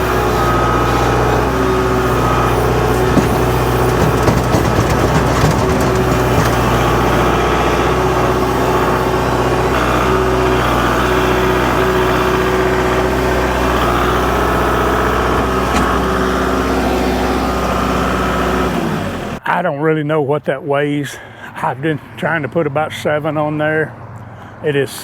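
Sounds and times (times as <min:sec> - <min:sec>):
engine idling: 0:00.0 - 0:19.4.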